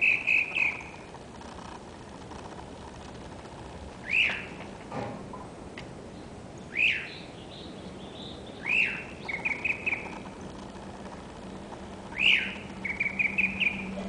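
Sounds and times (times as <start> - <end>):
bird chirping: 0.0 - 1.1, 4.0 - 4.7, 6.1 - 14.0.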